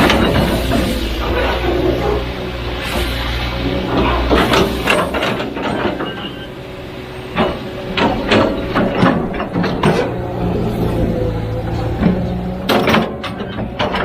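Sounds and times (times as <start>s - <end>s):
metallic clanks and knocks: 0.0s - 2.3s, 3.9s - 6.5s, 7.3s - 10.5s, 11.7s - 14.0s
diesel engine running: 0.0s - 14.0s.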